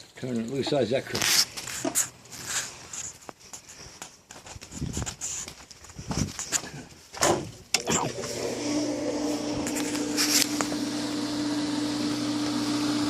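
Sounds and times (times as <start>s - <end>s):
pool pump motor humming: 7.8s - 13.0s.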